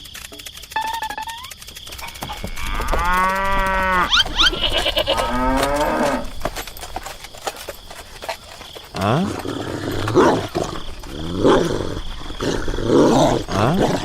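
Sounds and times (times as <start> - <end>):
short high squeaks: 0.7 - 6.3
long drawn-out animal calls: 2.0 - 6.3.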